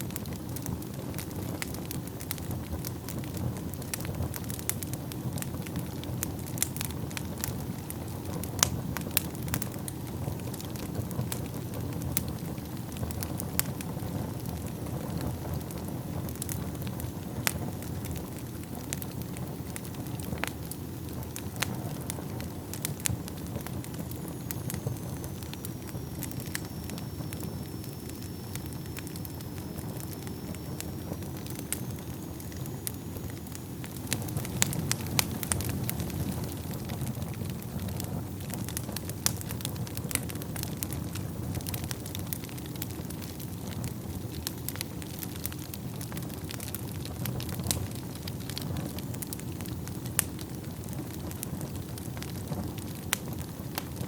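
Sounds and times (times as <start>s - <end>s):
burning logs crackling and popping: 0.0s - 54.0s
flames rushing: 0.0s - 54.0s
faint high whistle: 23.6s - 35.0s.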